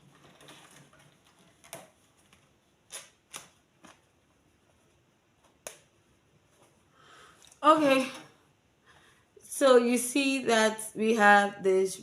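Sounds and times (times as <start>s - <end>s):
faint clicks and rustles: 0.0s - 7.6s.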